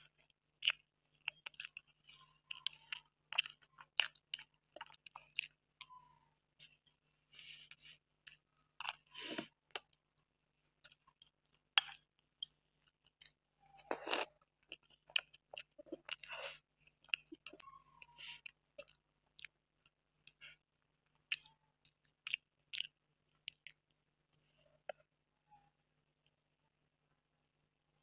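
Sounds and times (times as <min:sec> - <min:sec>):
chewing and mouth sounds: 0:00.0 - 0:05.9, 0:07.5 - 0:10.0, 0:10.8 - 0:20.6, 0:21.2 - 0:23.8.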